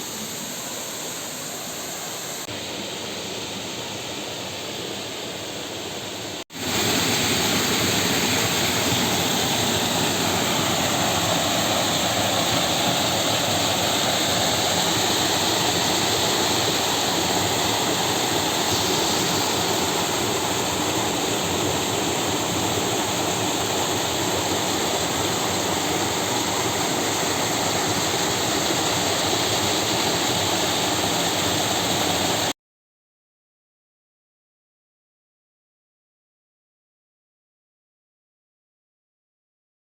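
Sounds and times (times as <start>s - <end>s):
waterfall roaring: 6.6s - 32.5s.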